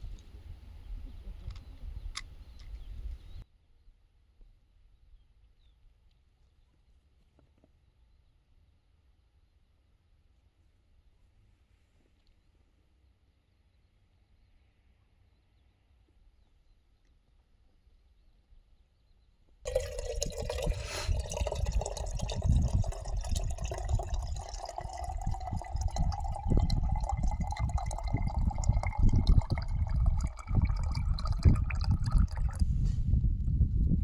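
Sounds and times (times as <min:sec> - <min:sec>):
water pouring into container: 0:19.7 - 0:32.8
wind on microphone: 0:19.7 - 0:34.0.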